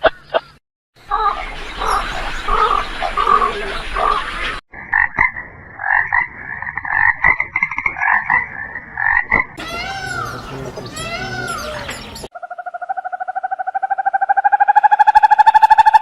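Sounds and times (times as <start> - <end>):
frogs croaking: 1.0 - 16.0
pulsed high-pitched frog calls: 12.3 - 16.0.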